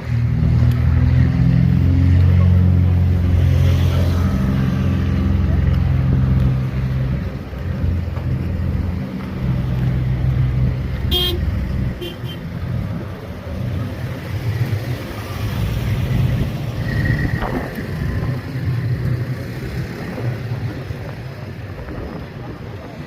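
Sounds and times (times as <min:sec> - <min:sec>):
vehicle engines running: 0:00.0 - 0:23.0
car horn toot: 0:11.1 - 0:12.4.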